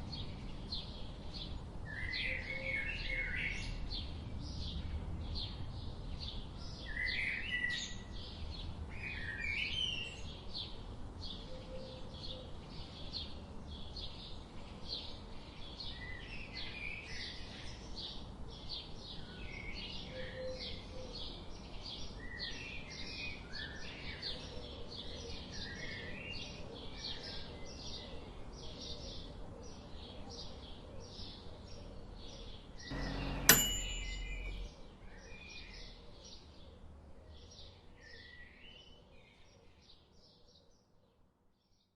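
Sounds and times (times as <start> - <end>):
sharp click: 32.9 - 34.6.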